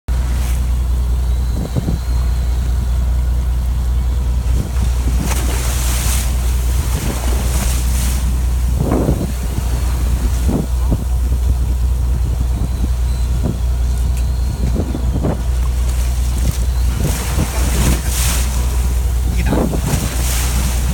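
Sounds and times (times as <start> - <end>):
boat engine droning: 0.1 - 20.9
wind gusts on microphone: 0.1 - 20.9.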